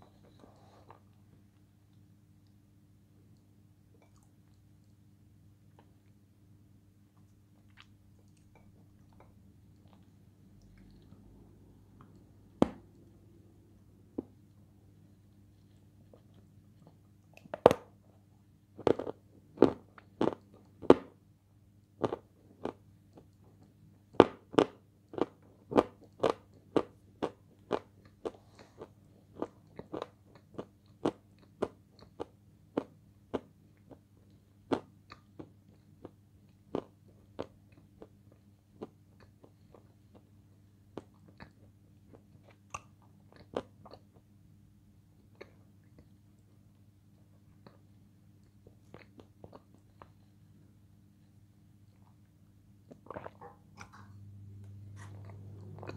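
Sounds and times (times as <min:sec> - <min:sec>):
crunchy chewing: 0:52.9 - 0:54.0.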